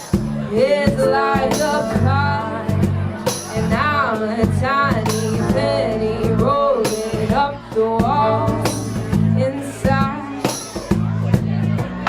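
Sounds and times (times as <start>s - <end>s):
drums hitting: 0.0s - 12.0s
sustained bass line: 0.2s - 12.0s
pitch-bending melody line: 0.8s - 10.2s.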